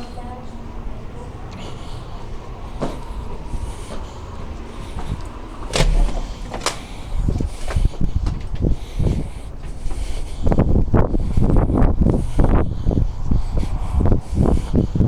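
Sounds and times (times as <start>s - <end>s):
door clacking: 5.6s - 8.7s
low rumble: 5.6s - 8.8s
dull thumps: 5.7s - 8.6s.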